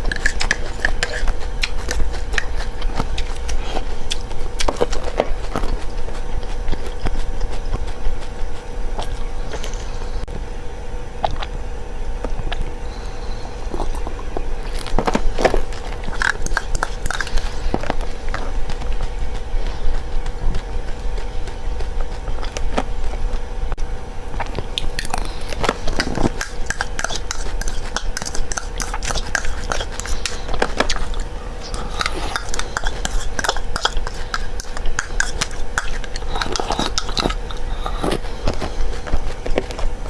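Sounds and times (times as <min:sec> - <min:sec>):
crunching dry seeds: 0:00.0 - 0:10.3, 0:13.0 - 0:23.2, 0:23.8 - 0:40.0
low hum: 0:00.0 - 0:40.0.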